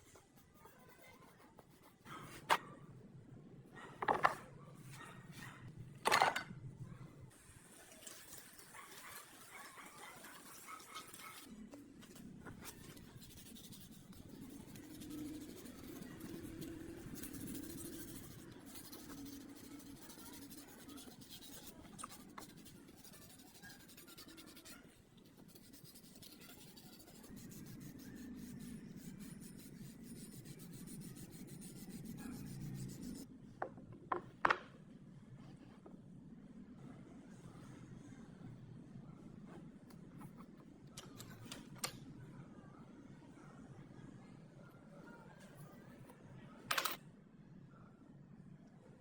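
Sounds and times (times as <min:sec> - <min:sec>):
scratchy rubbing on a surface: 0:12.5 - 0:33.2.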